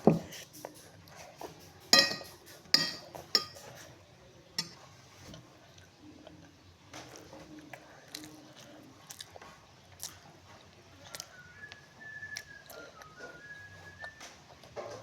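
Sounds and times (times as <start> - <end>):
close-up chewing and crunching: 5.3 - 15.0.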